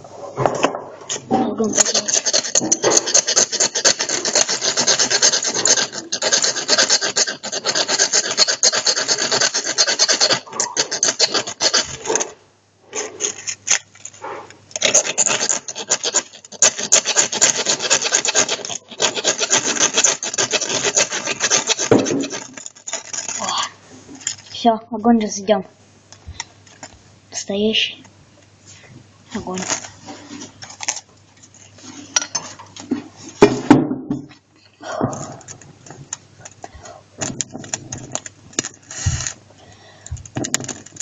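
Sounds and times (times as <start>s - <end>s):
striker scraping fire steel rod: 1.4s - 12.3s, 12.9s - 23.6s.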